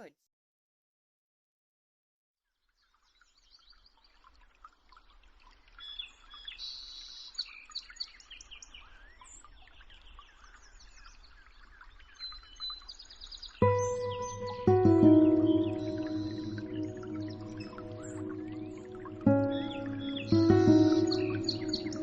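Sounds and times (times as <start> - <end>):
small birds chirping chorus: 2.8 - 22.0.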